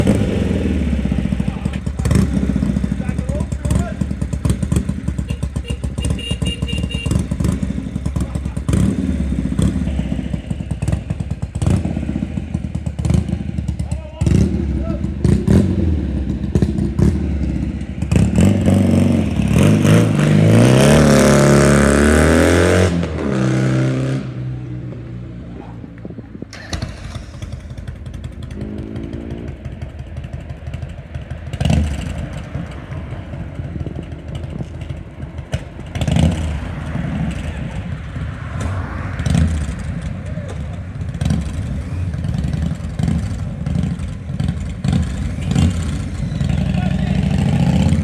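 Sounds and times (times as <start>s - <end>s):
motorcycle engine revving and idling: 0.0s - 48.0s.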